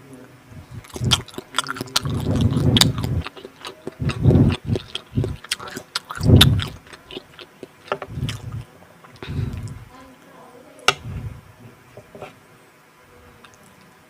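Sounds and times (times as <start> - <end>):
chewing soft food: 0.6 - 9.9
wet mouth clicks and smacks: 0.9 - 8.6.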